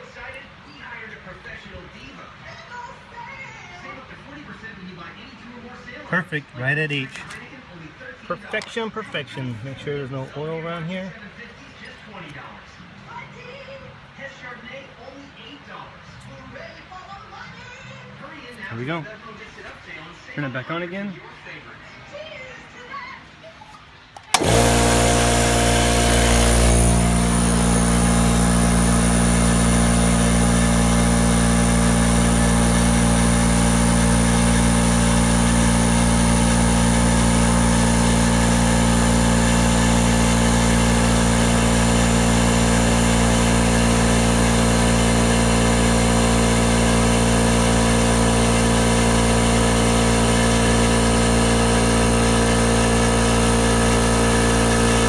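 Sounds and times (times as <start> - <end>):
air compressor running: 24.2 - 55.0.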